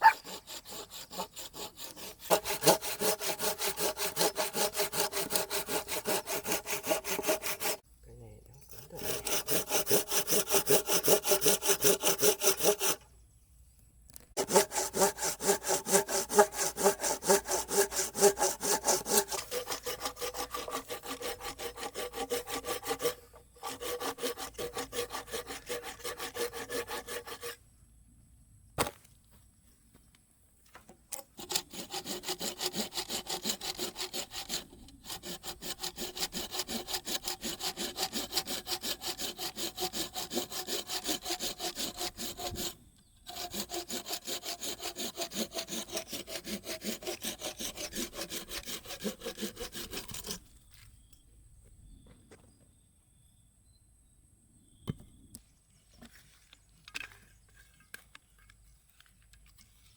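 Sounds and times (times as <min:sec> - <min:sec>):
hand saw cutting wood: 0:00.0 - 0:07.8, 0:08.7 - 0:13.0, 0:14.4 - 0:27.6, 0:31.2 - 0:50.5.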